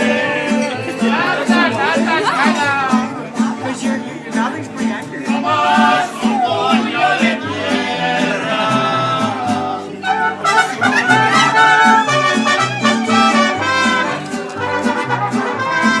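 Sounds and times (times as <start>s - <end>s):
trumpets: 10.0s - 16.0s.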